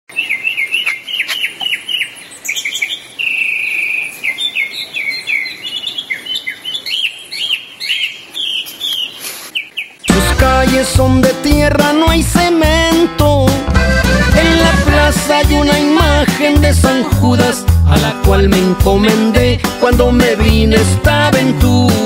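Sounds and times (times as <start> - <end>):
songbird chirping: 0.1 - 17.4.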